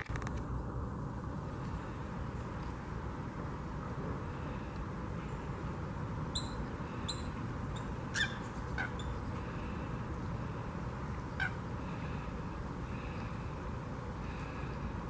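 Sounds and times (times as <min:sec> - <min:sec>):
low background rumble: 0:00.0 - 0:15.0
sharp bird calls: 0:06.3 - 0:12.3.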